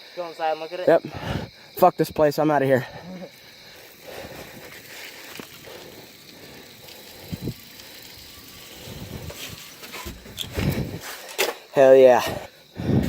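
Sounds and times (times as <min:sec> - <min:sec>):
bicycle rolling over dirt trail: 0:02.8 - 0:13.0
bicycle frame rattling: 0:03.3 - 0:13.0.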